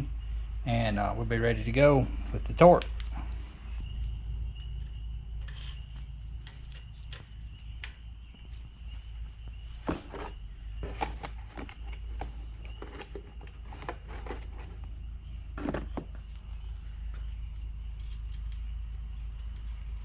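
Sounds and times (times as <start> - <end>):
engine parts clicking and knocking: 4.6 - 20.0.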